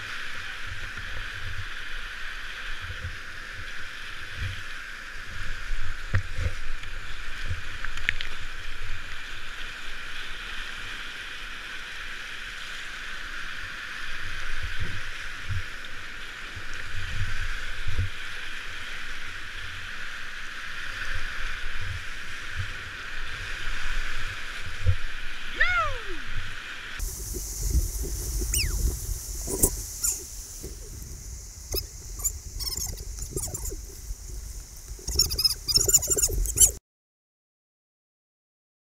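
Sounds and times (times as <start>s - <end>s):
water splashes: 0.0s - 36.8s
river water rushing: 25.1s - 36.8s
wind buffeting microphone: 27.0s - 36.8s.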